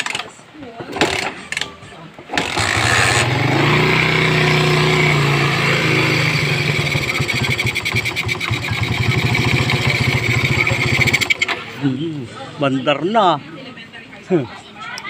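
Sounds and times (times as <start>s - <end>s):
motorcycle engine idling: 2.4s - 12.0s.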